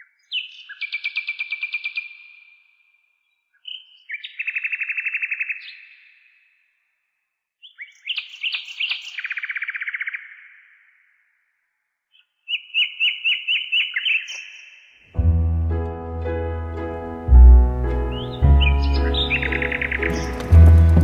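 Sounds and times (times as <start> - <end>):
songbird singing with echo: 17.8 - 21.0.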